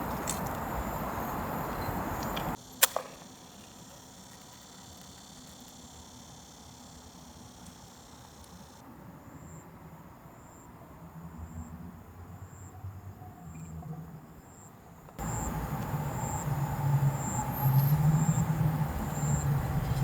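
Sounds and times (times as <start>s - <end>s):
insect chirping: 0.0s - 9.6s, 14.4s - 20.0s
low rumble with hiss: 15.2s - 20.0s.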